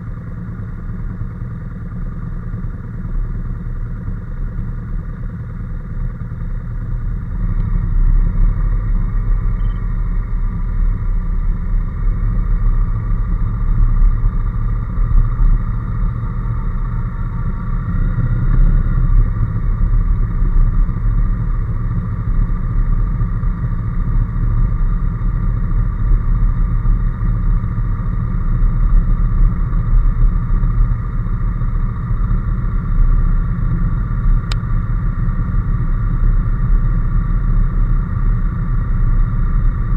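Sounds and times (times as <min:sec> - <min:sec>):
motorcycle engine running: 0:00.0 - 0:39.9
road rumble: 0:00.0 - 0:39.9.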